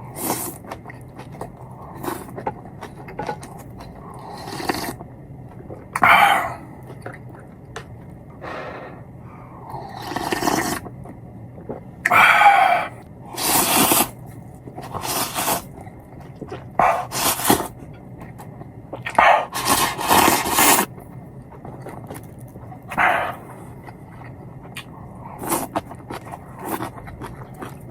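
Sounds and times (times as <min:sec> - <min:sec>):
person slurping noodles: 0:04.0 - 0:05.0, 0:09.6 - 0:10.8, 0:12.0 - 0:14.2, 0:14.8 - 0:15.7, 0:16.8 - 0:17.7, 0:19.1 - 0:20.9, 0:22.9 - 0:23.6.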